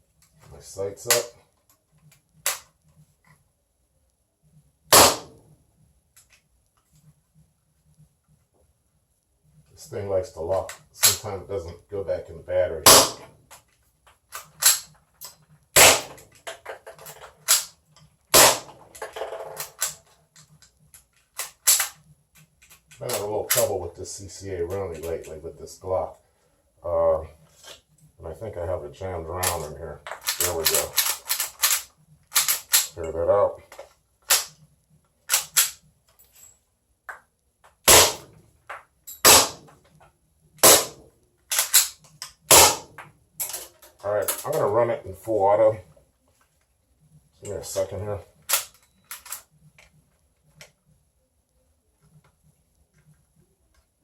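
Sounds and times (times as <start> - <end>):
pistol slide snapping: 2.4 - 2.7, 14.3 - 14.9, 17.5 - 17.7, 19.7 - 20.0, 21.4 - 22.0, 30.2 - 32.9, 35.3 - 35.8, 40.6 - 42.9
airsoft pistol shots: 4.9 - 5.4, 12.9 - 13.3, 15.8 - 16.2, 18.3 - 18.8, 37.9 - 38.3, 39.2 - 39.7, 40.6 - 41.0, 42.5 - 43.0.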